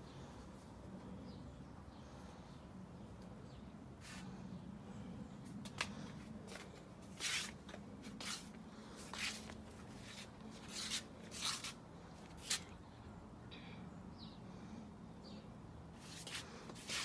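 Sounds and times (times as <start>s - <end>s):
rustling scrapes: 16.0s - 17.0s.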